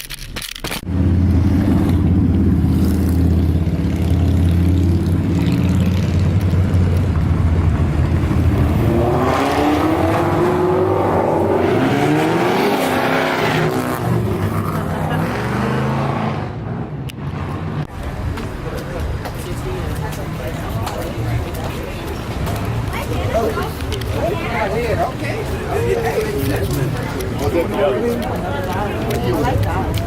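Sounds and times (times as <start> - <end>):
car engine revving: 0.8 - 17.9.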